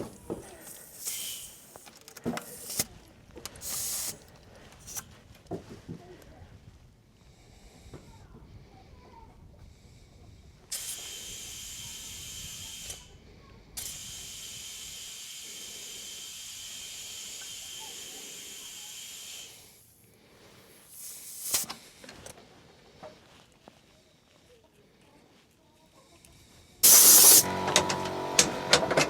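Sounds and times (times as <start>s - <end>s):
compressed air hissing: 0.0s - 5.2s, 9.7s - 22.3s, 26.8s - 29.0s
faint steady whistle: 13.9s - 19.8s.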